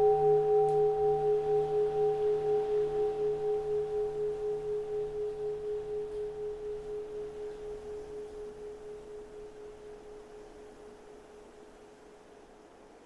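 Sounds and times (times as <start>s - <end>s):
bowl bell ringing: 0.0s - 10.1s.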